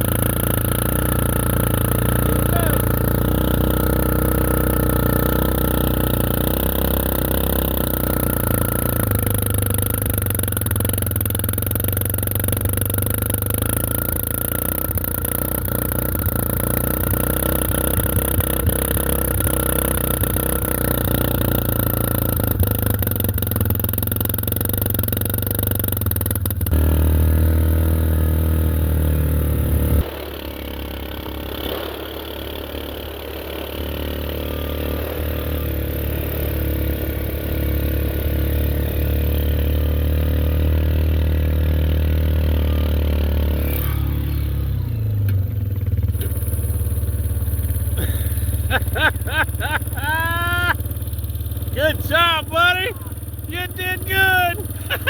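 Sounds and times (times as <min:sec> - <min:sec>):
tractor engine running: 0:00.0 - 0:27.9, 0:45.7 - 0:55.0.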